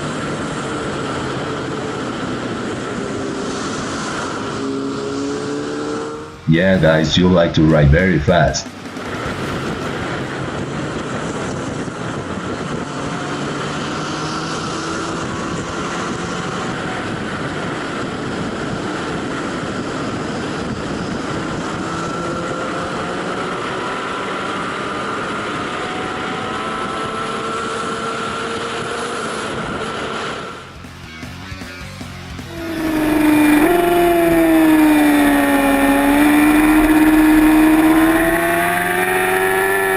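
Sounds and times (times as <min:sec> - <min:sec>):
motorcycle engines at high speed: 0:00.0 - 0:31.0, 0:32.1 - 0:39.9
steady rushing noise: 0:06.3 - 0:12.8, 0:32.5 - 0:39.9.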